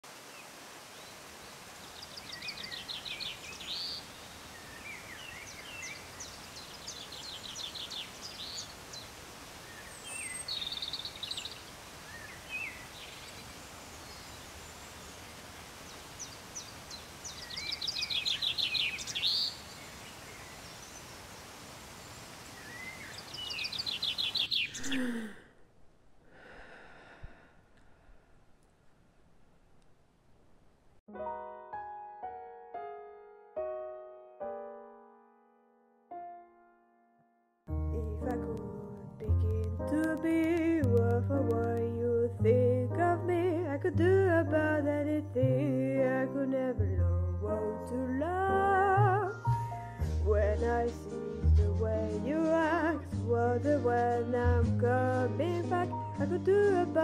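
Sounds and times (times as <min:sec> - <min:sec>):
steady outdoor hiss: 0:00.0 - 0:31.0, 0:47.6 - 0:57.0
songbird singing trilled phrases: 0:02.0 - 0:09.1, 0:09.7 - 0:14.8, 0:15.9 - 0:21.1, 0:22.6 - 0:25.1.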